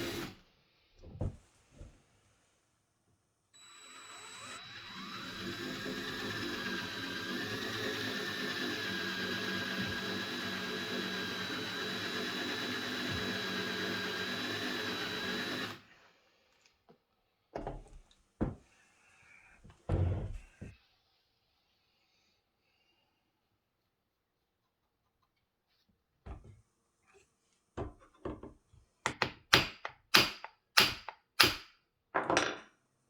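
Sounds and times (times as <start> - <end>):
electric drill running: 0.0 - 0.4, 3.6 - 15.9.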